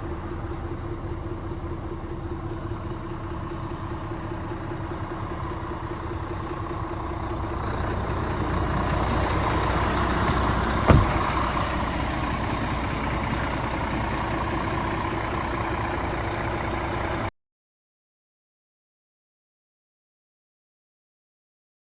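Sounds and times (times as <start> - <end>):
diesel engine running: 0.0 - 17.3
sharp thump: 10.8 - 11.6.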